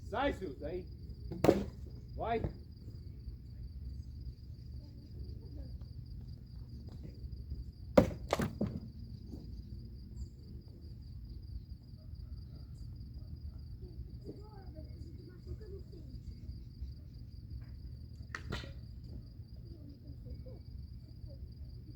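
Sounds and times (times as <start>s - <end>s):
cricket trill: 0.0s - 21.9s
wood dropped onto a pile: 8.0s - 8.9s.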